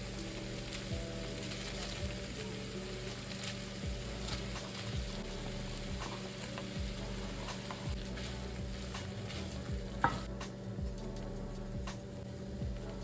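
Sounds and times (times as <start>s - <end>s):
food sizzling in a pan: 0.0s - 13.0s
utensil clicking while stirring: 0.0s - 13.0s.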